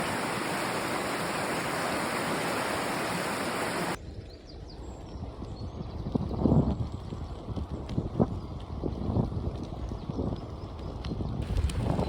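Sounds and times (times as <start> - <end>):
rushing water: 0.0 - 4.0
low wind rumble: 0.0 - 12.0.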